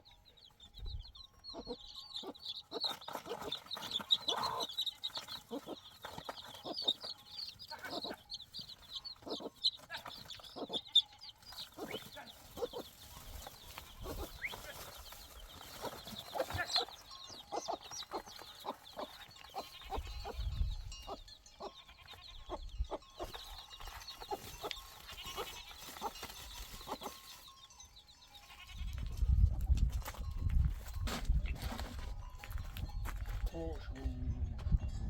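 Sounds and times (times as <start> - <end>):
animal calls: 1.5 - 23.6.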